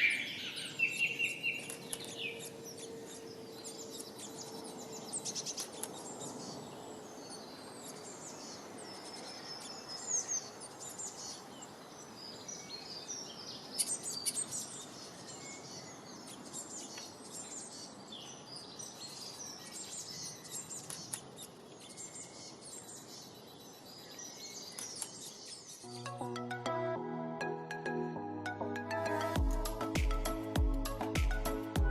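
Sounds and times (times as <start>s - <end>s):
small birds chirping: 0.0s - 26.6s
music: 25.8s - 31.9s.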